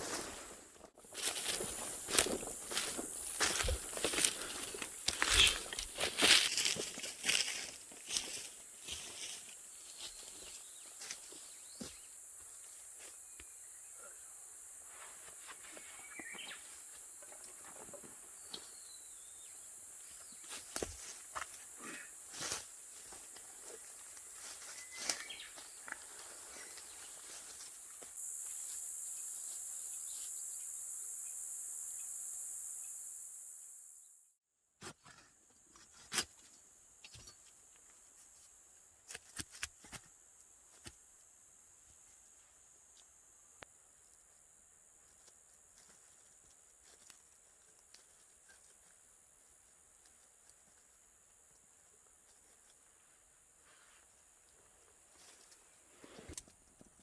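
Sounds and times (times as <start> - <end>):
faint high-pitched hiss: 0.0 - 34.2.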